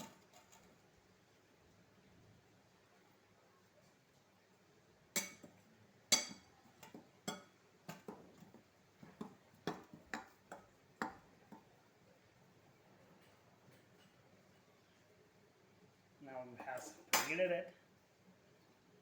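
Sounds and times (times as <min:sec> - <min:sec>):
utensil clinking against a bowl: 0:05.1 - 0:11.7.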